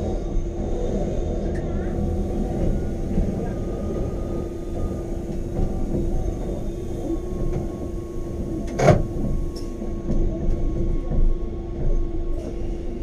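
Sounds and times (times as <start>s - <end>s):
train running with motor hum: 0.0s - 13.0s.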